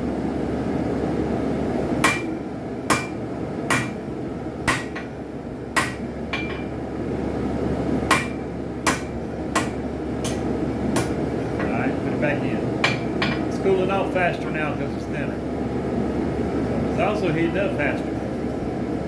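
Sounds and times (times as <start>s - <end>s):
hammer striking metal on anvil: 2.0s - 4.0s, 4.6s - 5.1s, 5.8s - 6.7s, 8.1s - 11.2s, 12.8s - 13.5s.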